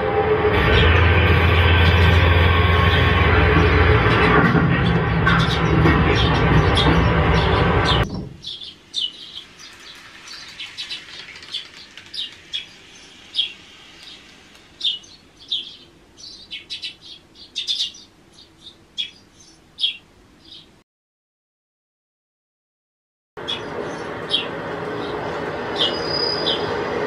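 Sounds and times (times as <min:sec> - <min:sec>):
small birds chirping: 0:05.4 - 0:20.8, 0:23.4 - 0:26.7.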